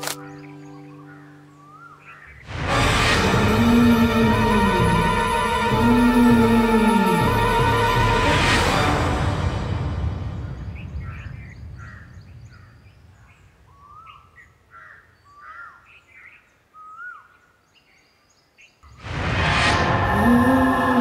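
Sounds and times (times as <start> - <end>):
birds chirping and calling: 0.0 - 2.6, 10.4 - 19.0
low rumble: 2.4 - 13.3, 18.9 - 21.0
loud music: 2.5 - 10.7.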